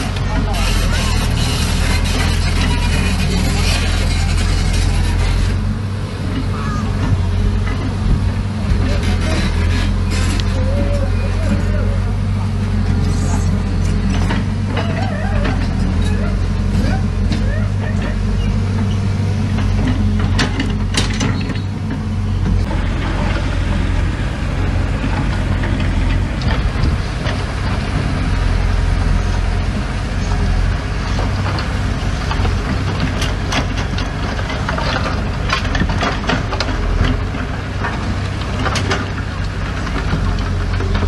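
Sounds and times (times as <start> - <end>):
diesel machine engine running: 0.0 - 41.0
metallic clanks and rattles: 13.8 - 24.0, 32.3 - 41.0.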